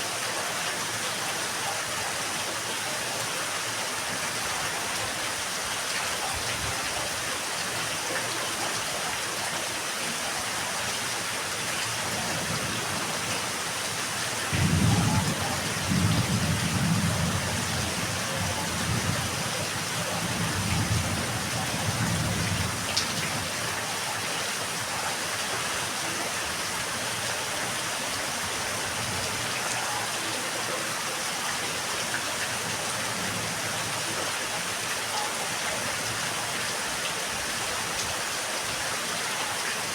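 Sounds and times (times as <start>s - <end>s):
steady rain: 0.0s - 39.9s
rumble of thunder: 14.5s - 23.5s.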